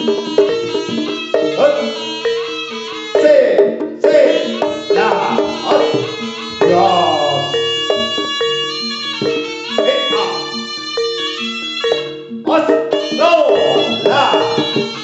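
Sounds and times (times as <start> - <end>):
struck pitched percussion: 0.0 - 15.0
drumming: 3.0 - 15.0
gliding melodic line: 4.5 - 15.0.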